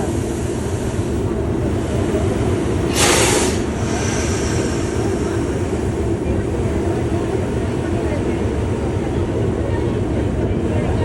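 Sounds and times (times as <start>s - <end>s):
diesel locomotive engine idling: 0.0s - 11.0s
short burst of hiss: 2.9s - 5.0s.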